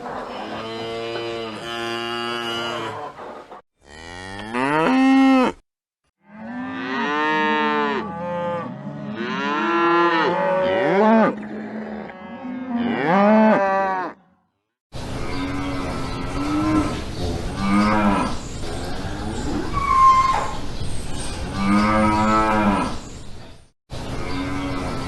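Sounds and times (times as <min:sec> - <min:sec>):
cattle mooing: 0:00.4 - 0:03.0, 0:03.8 - 0:05.6, 0:06.2 - 0:14.2.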